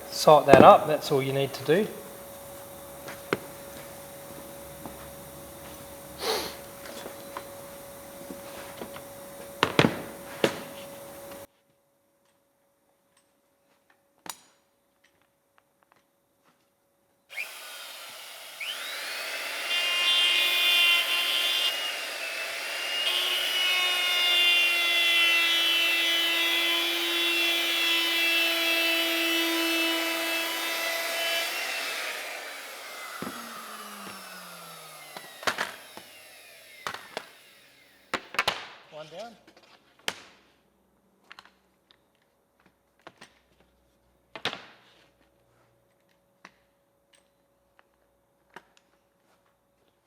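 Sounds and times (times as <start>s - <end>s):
router bit cutting wood: 0.0s - 11.4s, 17.3s - 38.2s
electric router whine: 0.0s - 11.5s, 17.3s - 38.3s.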